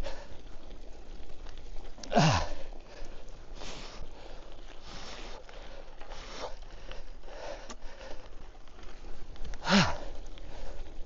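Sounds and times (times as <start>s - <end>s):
cyclist breathing hard: 0.0s - 1.2s, 2.0s - 11.0s
tyres crunching on rough ground: 0.0s - 11.0s.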